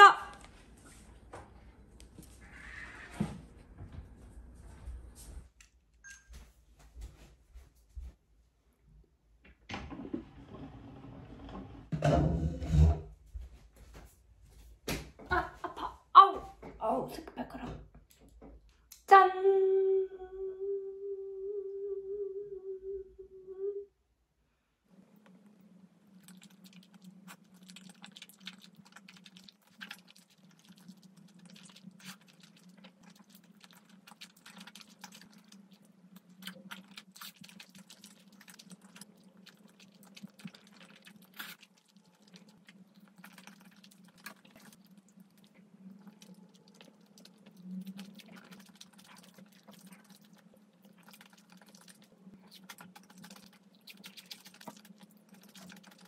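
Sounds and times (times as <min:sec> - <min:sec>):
chewing soft food: 0:25.2 - 0:56.0.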